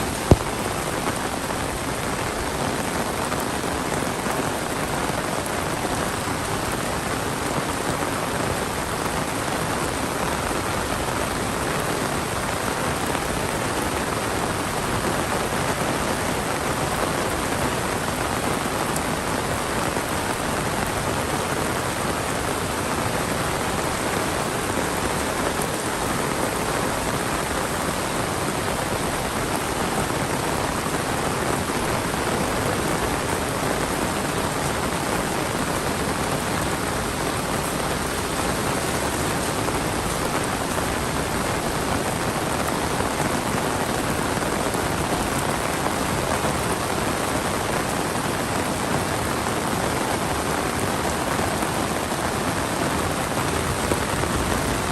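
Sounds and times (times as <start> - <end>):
heavy rain pouring: 0.0 - 54.9.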